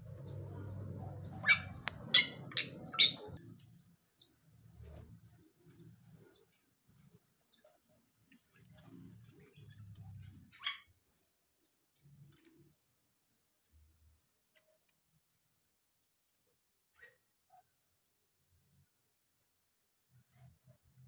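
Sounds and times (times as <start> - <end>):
small birds chirping: 0.0 - 16.1.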